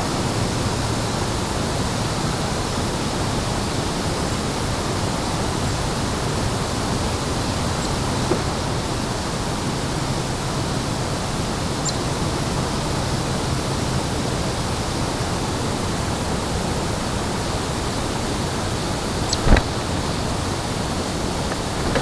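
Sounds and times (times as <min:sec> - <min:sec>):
short thump: 0:08.0 - 0:09.2, 0:19.3 - 0:20.0, 0:21.5 - 0:22.0
steady rushing noise: 0:19.4 - 0:20.3.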